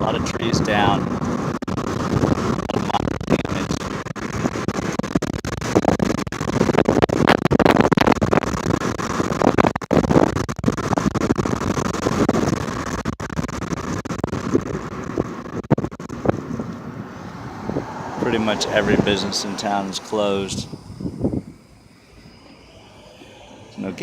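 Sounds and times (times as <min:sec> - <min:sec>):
vehicle rumble: 0:00.0 - 0:05.1, 0:14.4 - 0:24.0
wind buffeting microphone: 0:00.0 - 0:12.8, 0:14.2 - 0:24.0.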